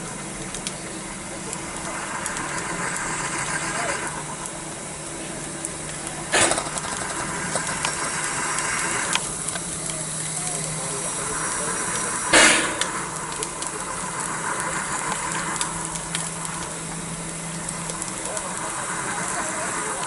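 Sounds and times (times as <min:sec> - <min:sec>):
locomotive engine running: 0:00.0 - 0:20.0
loud hissing bursts: 0:00.0 - 0:20.0.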